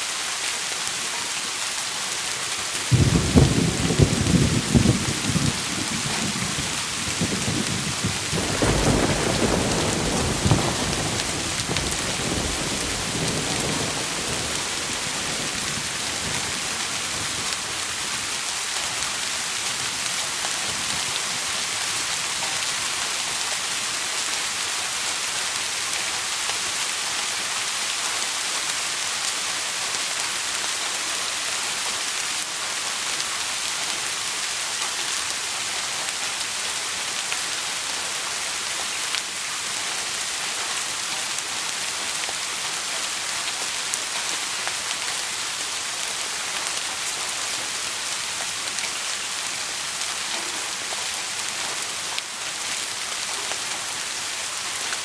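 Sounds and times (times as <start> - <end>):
rain falling on a surface: 0.0 - 55.0.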